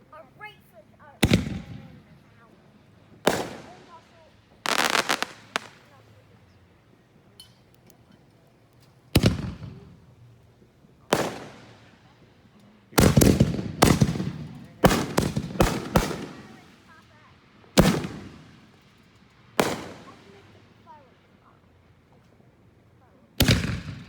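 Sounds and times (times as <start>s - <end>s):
fireworks bangs echoing: 1.2s - 2.4s, 3.0s - 6.2s, 9.1s - 10.2s, 11.0s - 12.2s, 12.9s - 17.0s, 17.7s - 20.9s, 23.4s - 24.0s.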